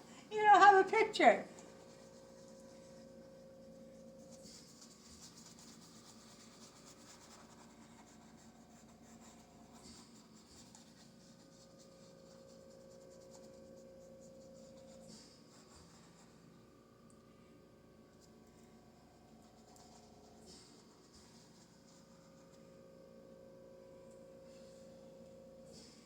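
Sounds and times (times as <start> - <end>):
faint steady hum: 0.0 - 26.0
paintbrush scratching on canvas: 1.7 - 16.6.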